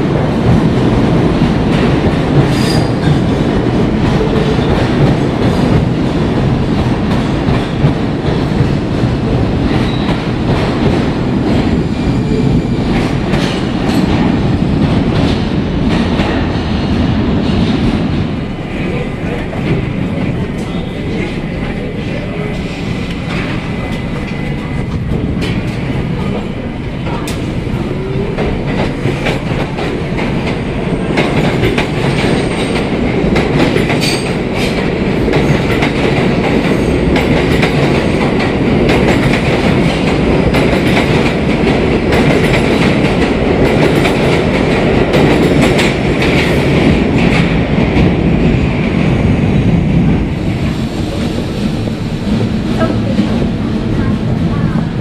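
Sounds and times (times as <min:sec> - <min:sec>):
subway train wheels clattering: 0:00.0 - 0:55.0.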